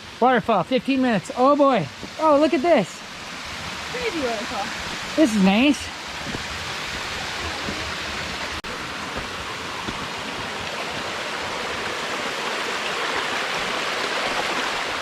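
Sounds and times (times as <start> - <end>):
small waterfall rushing: 0.0 - 15.0.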